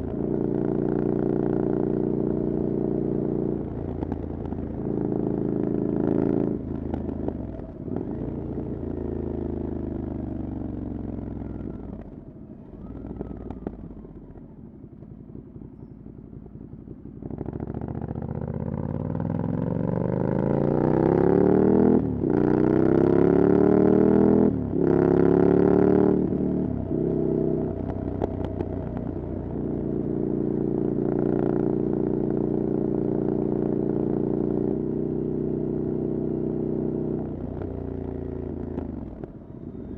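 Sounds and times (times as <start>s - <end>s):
motorcycle engine revving: 16.5s - 39.9s.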